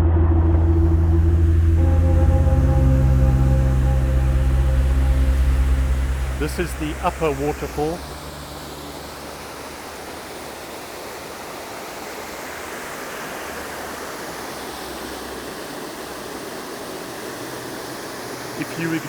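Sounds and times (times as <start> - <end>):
small waterfall splashing: 9.4 - 19.0.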